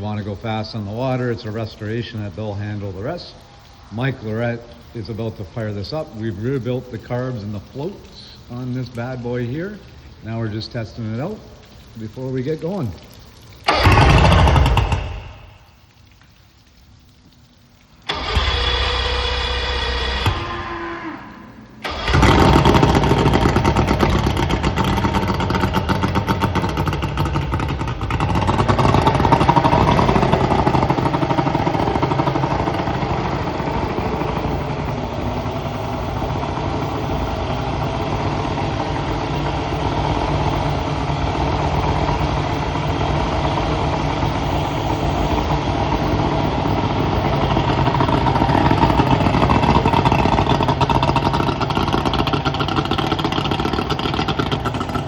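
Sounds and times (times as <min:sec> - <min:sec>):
outboard motor running: 0:13.6 - 0:15.8, 0:18.1 - 0:55.0.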